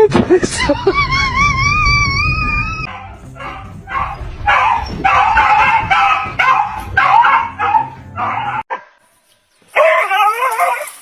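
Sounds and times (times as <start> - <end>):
dog barking and yipping: 2.8 - 9.0, 9.7 - 11.0.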